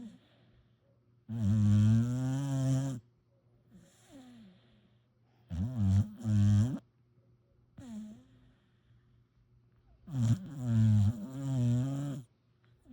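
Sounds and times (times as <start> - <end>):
puppy snoring: 1.3 - 3.0, 3.8 - 4.8, 5.4 - 6.8, 7.8 - 8.6, 10.0 - 12.3.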